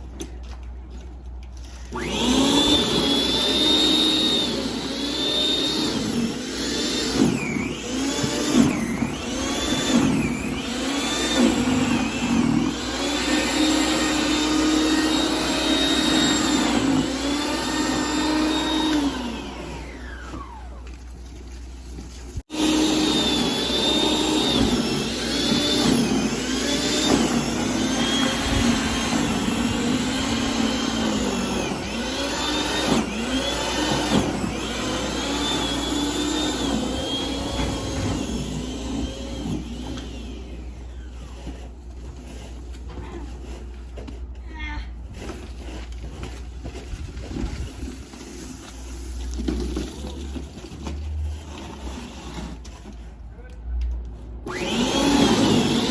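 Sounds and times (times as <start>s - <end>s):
snowblower running: 1.6s - 21.2s, 22.4s - 42.5s, 54.5s - 55.9s.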